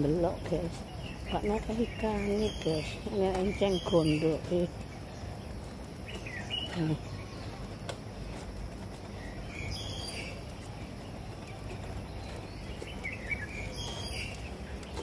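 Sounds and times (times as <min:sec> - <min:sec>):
low outdoor rumble: 0:00.0 - 0:15.0
high bird chirps: 0:11.8 - 0:15.0.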